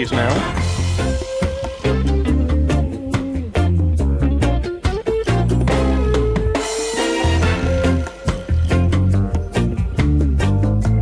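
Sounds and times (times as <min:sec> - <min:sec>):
upbeat band music: 0:00.0 - 0:11.0
drum fill and crash: 0:05.4 - 0:10.2.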